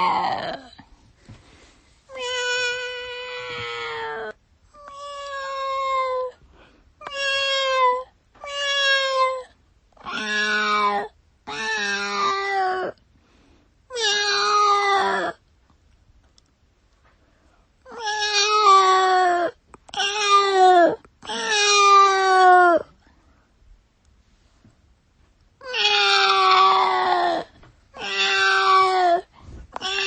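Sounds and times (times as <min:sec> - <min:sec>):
cat meowing: 0:02.1 - 0:06.3, 0:07.0 - 0:13.0, 0:13.9 - 0:15.4, 0:17.9 - 0:22.9, 0:25.6 - 0:30.0.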